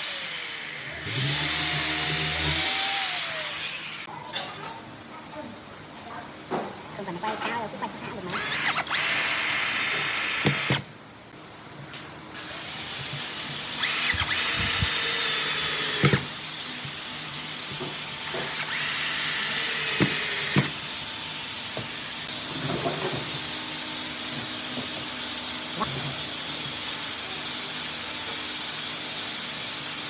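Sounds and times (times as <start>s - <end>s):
power drill whining: 0.0s - 4.1s, 8.3s - 10.8s, 13.8s - 16.4s, 18.2s - 20.8s.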